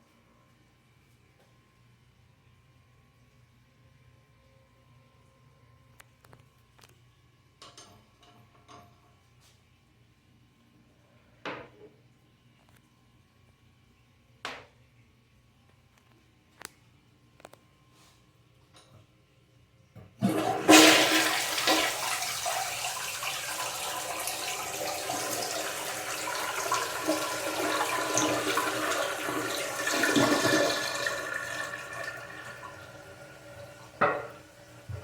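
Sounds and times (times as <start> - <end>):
toilet flushing: 20.2 - 35.0.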